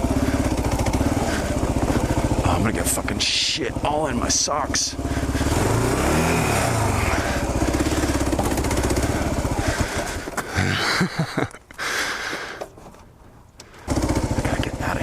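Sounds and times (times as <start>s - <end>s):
motorcycle engine running: 0.0s - 11.5s, 13.7s - 15.0s.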